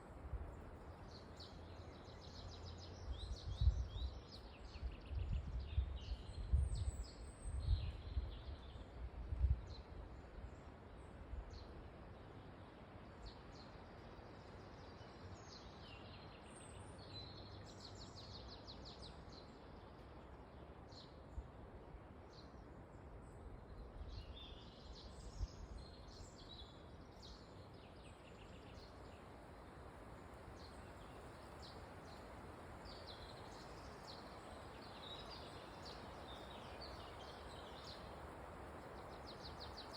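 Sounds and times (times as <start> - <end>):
wind rushing through trees: 0.0 - 39.9
small birds chirping: 30.2 - 39.9.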